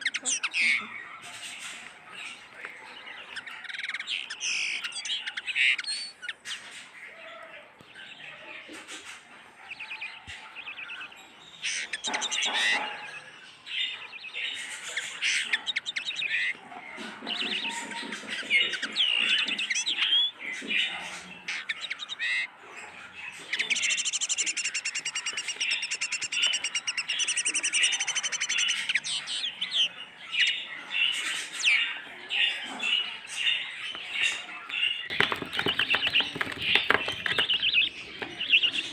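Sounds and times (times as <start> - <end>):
birds chirping and twittering: 0.0 - 38.9
fast bird trill: 35.0 - 38.9.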